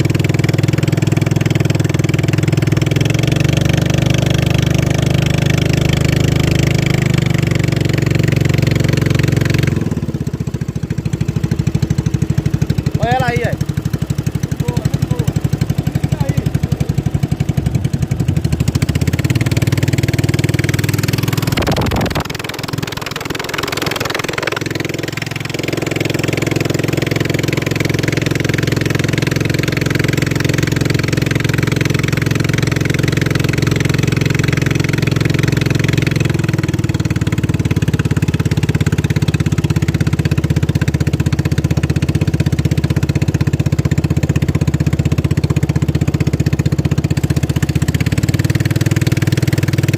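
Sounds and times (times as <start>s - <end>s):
racing boat engine running: 0.0s - 49.9s.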